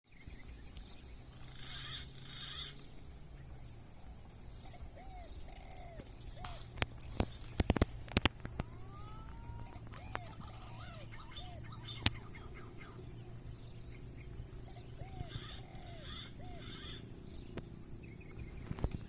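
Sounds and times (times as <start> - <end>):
bird calls: 0.0 - 19.0
sharp clicks: 11.9 - 12.2.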